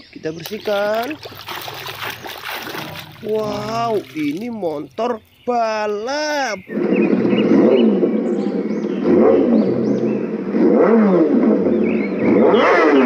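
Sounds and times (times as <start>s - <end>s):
motorcycle engine revving: 6.6s - 13.0s.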